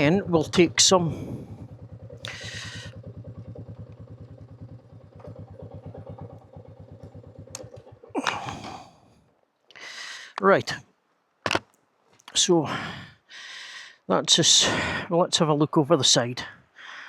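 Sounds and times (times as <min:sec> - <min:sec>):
motorcycle engine idling: 0:00.0 - 0:09.4.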